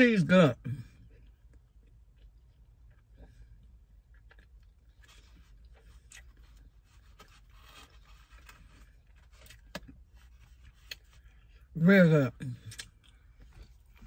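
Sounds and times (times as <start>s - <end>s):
faint chewing: 0.8s - 11.7s.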